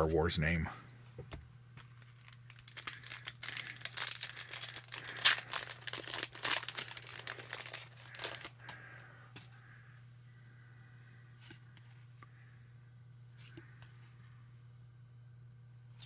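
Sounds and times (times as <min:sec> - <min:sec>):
foil wrapper crinkling: 0:01.8 - 0:09.0.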